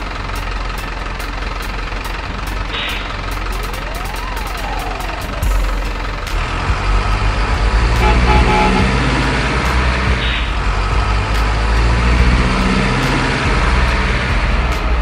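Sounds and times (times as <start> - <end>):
toy truck engine rumbling: 0.0 - 15.0
horn toots: 7.6 - 10.6.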